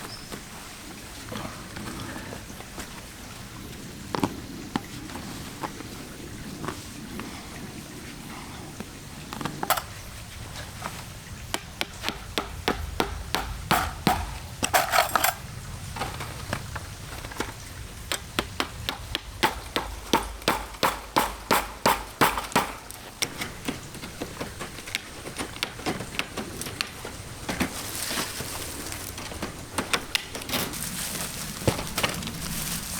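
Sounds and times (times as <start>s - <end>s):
hammer knocking: 11.6s - 14.4s, 18.4s - 22.9s.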